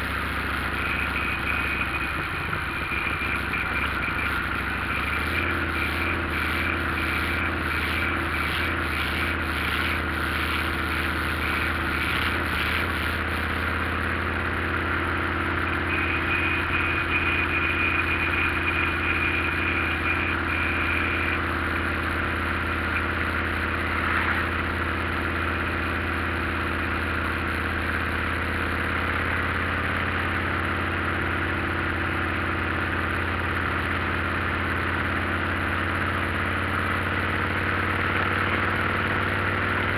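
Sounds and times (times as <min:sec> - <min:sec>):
high thin whine: 0:00.0 - 0:26.1
road and wind noise: 0:00.0 - 0:26.7
motorcycle engine humming: 0:00.0 - 0:39.9.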